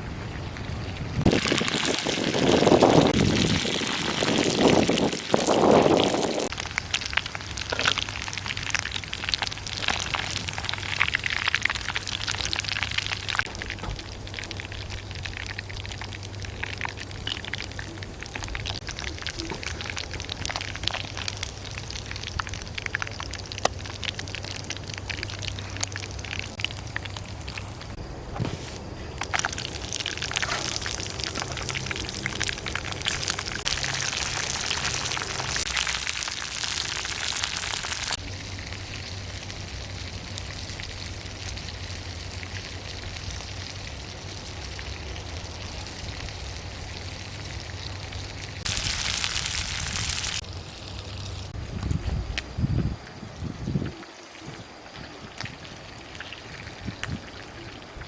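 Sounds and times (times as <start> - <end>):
frog pieces sizzling in hot oil: 0.2 - 28.1, 29.2 - 58.0.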